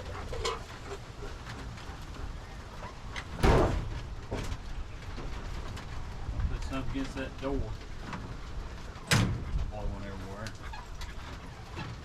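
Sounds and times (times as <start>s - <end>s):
door slamming shut: 3.4s - 4.5s, 9.0s - 9.5s.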